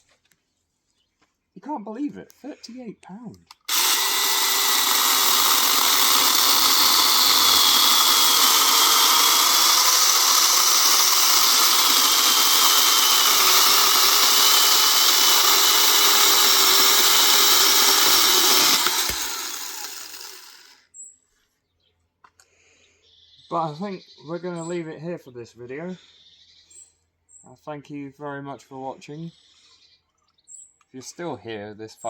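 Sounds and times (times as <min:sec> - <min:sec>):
electric chainsaw whirring: 0:03.6 - 0:20.8.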